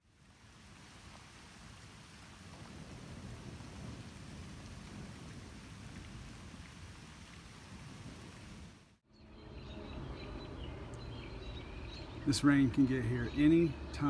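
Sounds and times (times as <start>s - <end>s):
distant thunder rumbling: 2.4s - 8.8s.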